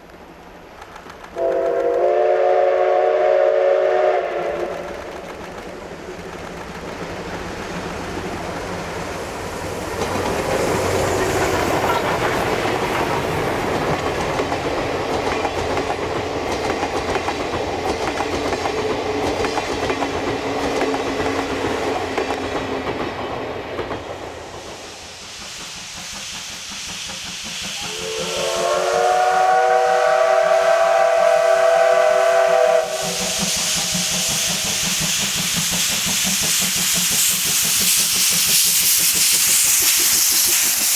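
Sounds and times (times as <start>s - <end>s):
train wheels clattering on rails: 0.0s - 30.8s, 31.4s - 40.9s
hiss of steam: 1.3s - 40.9s
steam whistle blast: 1.4s - 5.0s, 27.7s - 34.7s.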